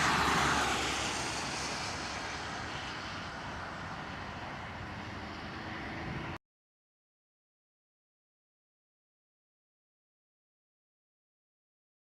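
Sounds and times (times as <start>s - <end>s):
jet engine roar: 0.0s - 6.4s.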